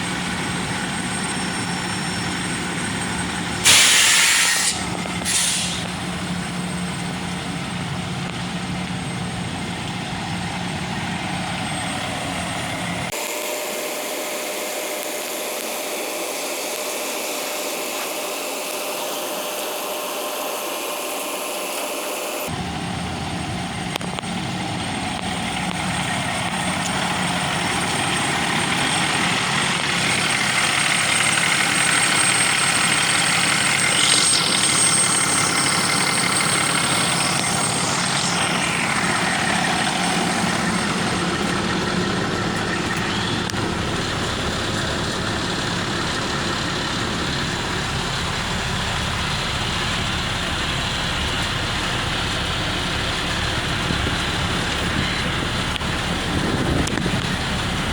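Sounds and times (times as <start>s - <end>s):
truck engine running: 0.0s - 57.9s.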